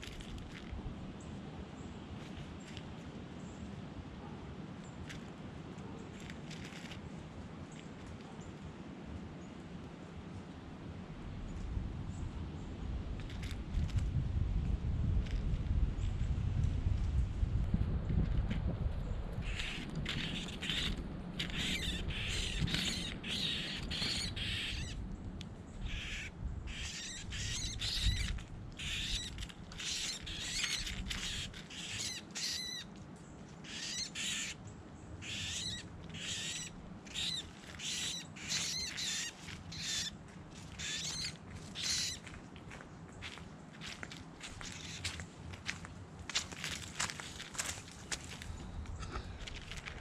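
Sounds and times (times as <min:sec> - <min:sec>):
small bird harsh calls: 0:19.4 - 0:25.0, 0:25.7 - 0:32.9, 0:33.6 - 0:34.6, 0:35.2 - 0:42.3, 0:44.6 - 0:45.2.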